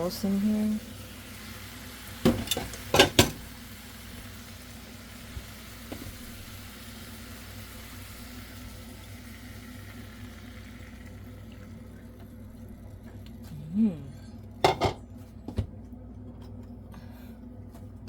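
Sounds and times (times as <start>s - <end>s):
chicken sizzling in a pan: 0.0s - 11.4s
cookware clanking: 2.3s - 3.4s, 14.6s - 15.0s.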